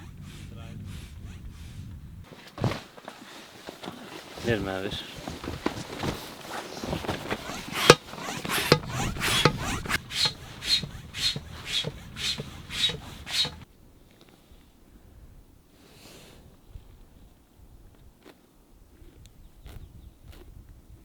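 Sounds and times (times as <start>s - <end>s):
rhythmic scraping strokes: 7.0s - 13.6s.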